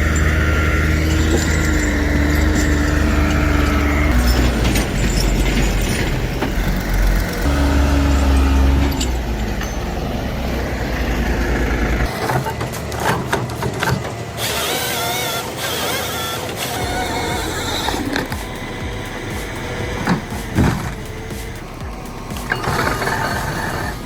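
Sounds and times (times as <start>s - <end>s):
heavy vehicle engine rumbling: 0.0s - 24.0s
wavering whine: 0.0s - 24.0s
clanks and knocks: 12.0s - 24.0s.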